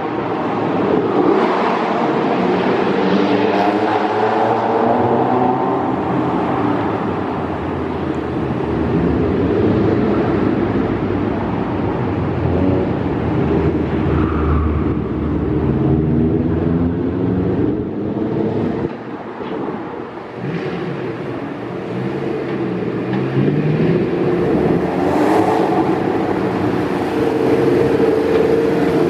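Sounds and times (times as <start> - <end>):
car engine revving: 20.3 - 29.0.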